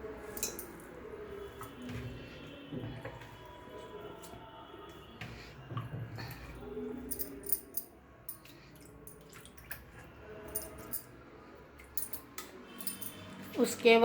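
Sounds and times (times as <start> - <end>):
water drips and splashes: 8.2 - 13.5.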